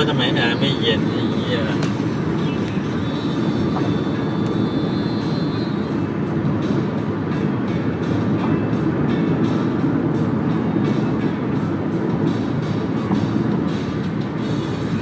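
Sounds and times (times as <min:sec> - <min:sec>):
road and engine rumble in car: 0:00.0 - 0:15.0.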